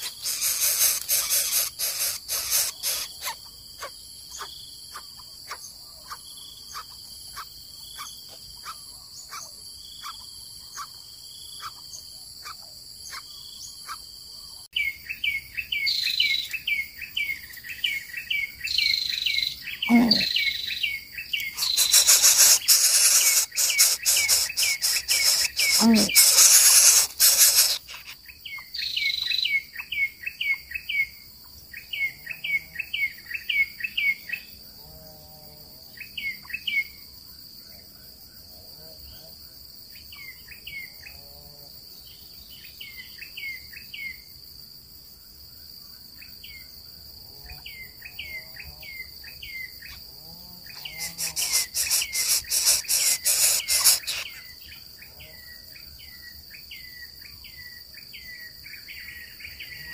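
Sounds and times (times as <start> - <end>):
quick chirping bird calls: 0.0 - 30.6, 50.7 - 54.6
high insect drone: 0.0 - 59.9.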